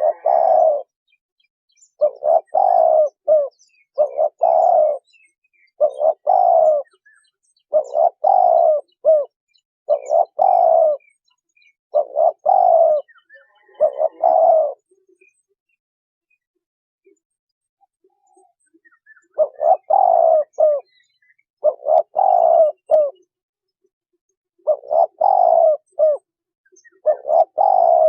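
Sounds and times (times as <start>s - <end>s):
dove cooing: 0.0s - 0.9s, 2.0s - 11.1s, 11.9s - 15.0s, 18.0s - 23.3s, 24.6s - 28.0s.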